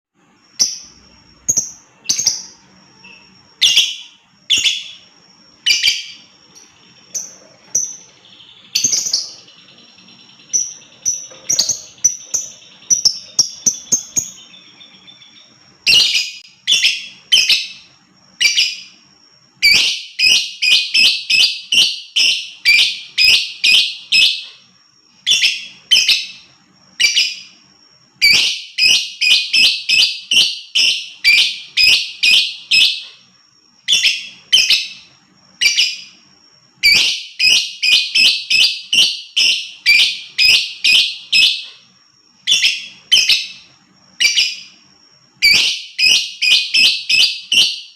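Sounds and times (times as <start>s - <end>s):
bird shrill chirps: 0.5s - 24.6s, 25.2s - 36.2s, 36.8s - 41.8s, 42.4s - 47.9s.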